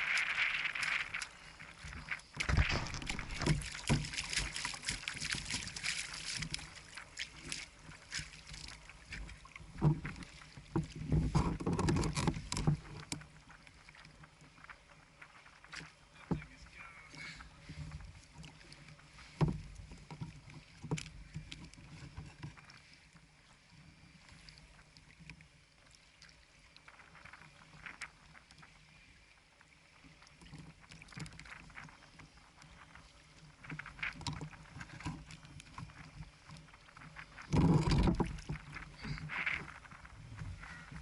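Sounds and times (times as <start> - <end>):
water lapping against kayak: 0.0 - 41.0
knocks on hull: 2.4 - 5.0
loud splash: 2.4 - 6.4.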